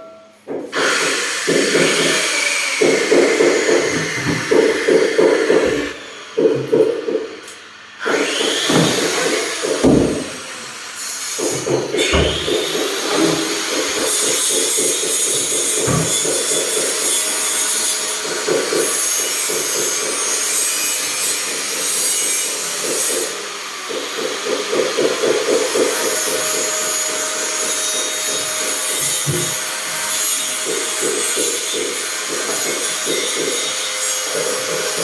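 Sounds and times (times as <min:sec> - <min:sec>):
rasping of wood being worked: 0:23.9 - 0:35.0.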